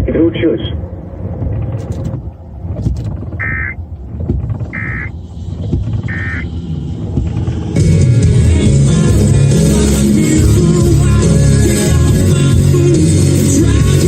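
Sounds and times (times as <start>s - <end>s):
vehicle cabin rumble: 0.0s - 14.0s
short electronic beeps: 3.4s - 3.8s, 4.7s - 5.1s, 6.1s - 6.5s.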